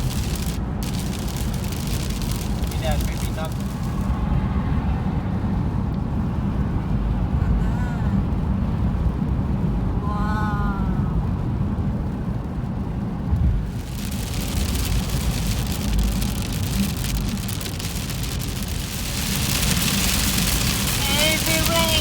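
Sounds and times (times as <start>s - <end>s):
rain hissing on car: 0.0s - 4.6s, 11.4s - 22.0s
car road rumble: 0.0s - 22.0s.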